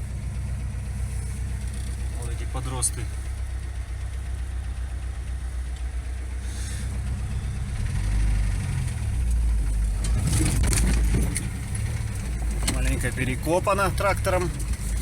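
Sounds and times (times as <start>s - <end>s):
vehicle engine and road rumble: 0.0s - 15.0s
knocks and rattles over bumps: 8.2s - 15.0s.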